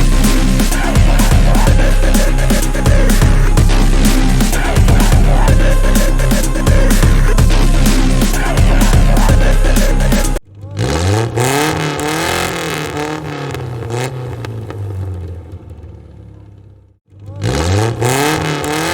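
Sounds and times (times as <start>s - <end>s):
music: 0.0s - 10.4s
car engine revving: 0.0s - 18.9s.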